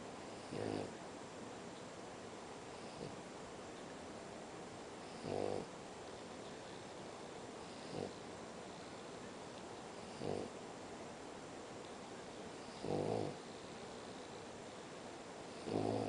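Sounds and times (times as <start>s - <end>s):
dog snoring: 0.3s - 1.0s, 2.7s - 3.2s, 5.0s - 5.7s, 7.6s - 8.2s, 10.0s - 10.6s, 12.6s - 14.3s, 15.5s - 16.0s.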